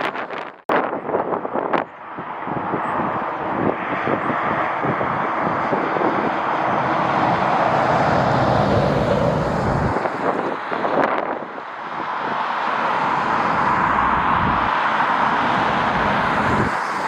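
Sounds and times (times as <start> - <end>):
wind buffeting microphone: 0.0 - 17.0
jet engine rushing: 3.4 - 10.9, 13.8 - 17.0.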